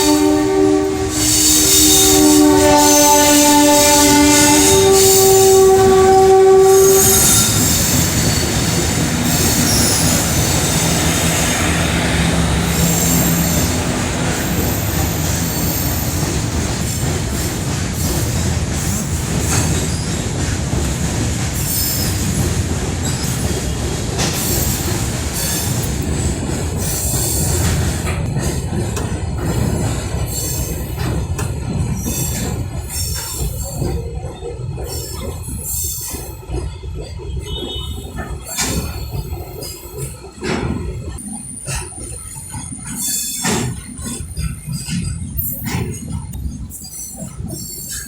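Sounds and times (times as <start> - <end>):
train horn chord: 0.0 - 7.8, 9.1 - 16.6
passing train rumble and clatter: 0.0 - 48.0.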